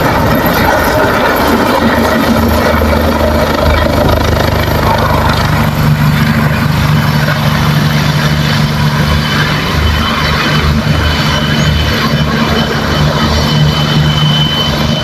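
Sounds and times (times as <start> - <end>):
helicopter rotor drone: 0.0 - 15.0.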